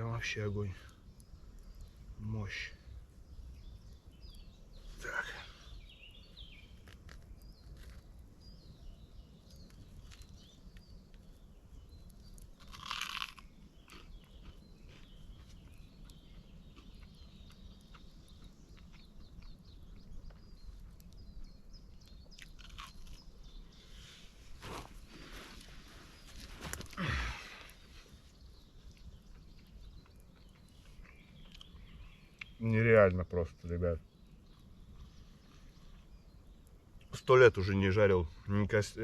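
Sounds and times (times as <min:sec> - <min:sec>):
person chewing crunchy food: 0:12.4 - 0:21.2, 0:22.3 - 0:23.3.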